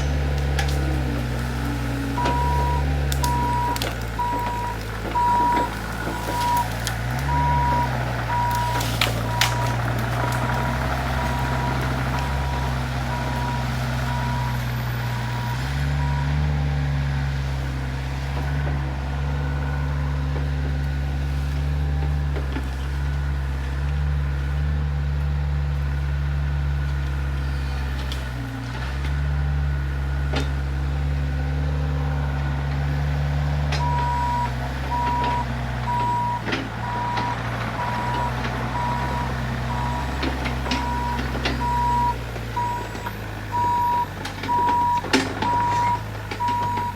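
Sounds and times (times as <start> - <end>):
heavy diesel engine running: 0.0 - 46.9
backup alarm beeping: 2.2 - 9.8, 11.2 - 14.6, 33.8 - 46.9.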